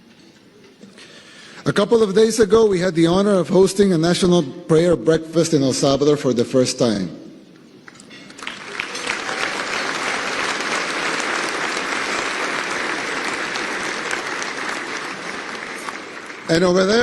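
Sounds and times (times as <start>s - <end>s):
audience applauding: 7.9s - 17.0s.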